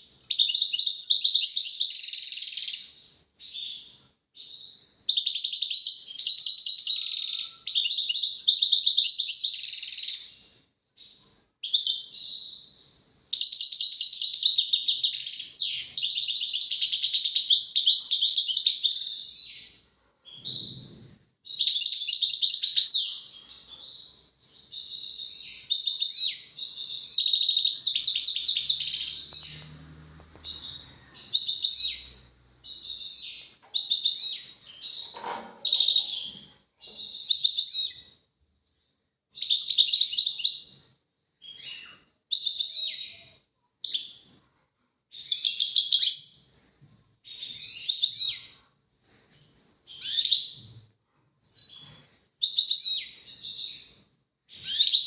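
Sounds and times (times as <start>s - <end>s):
goldfinch singing: 24.7s - 38.0s.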